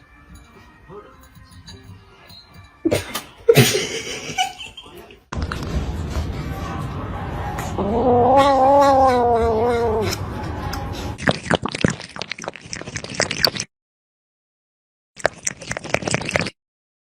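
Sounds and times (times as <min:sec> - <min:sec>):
cat meowing: 0:07.8 - 0:10.1.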